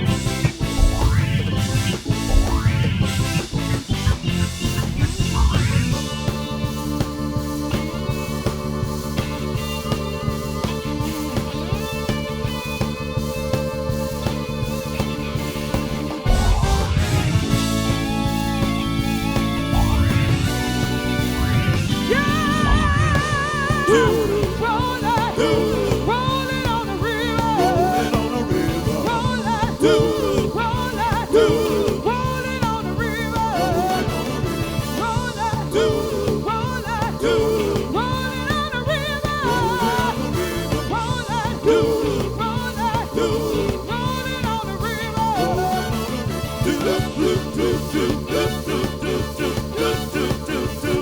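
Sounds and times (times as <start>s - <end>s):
soul band playing: 0.0s - 51.0s
lead line of bending notes: 0.1s - 6.5s.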